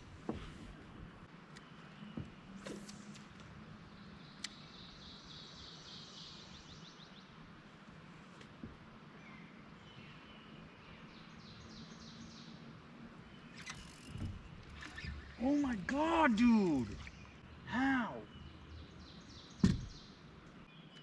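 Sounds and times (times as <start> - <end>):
quiet pond ambience: 0.0 - 21.0
faint songbird trills: 9.2 - 15.4.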